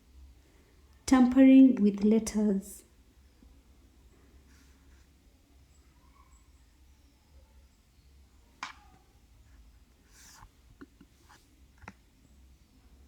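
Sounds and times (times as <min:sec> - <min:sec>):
faint low hum: 0:00.0 - 0:13.0
soft rustle: 0:04.1 - 0:06.4, 0:08.8 - 0:12.0.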